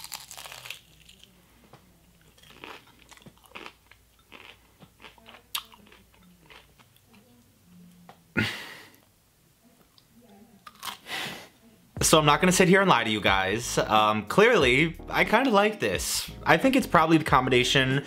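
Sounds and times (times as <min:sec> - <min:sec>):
person chewing crunchy food: 0:00.0 - 0:01.3, 0:02.2 - 0:07.2, 0:10.6 - 0:11.1.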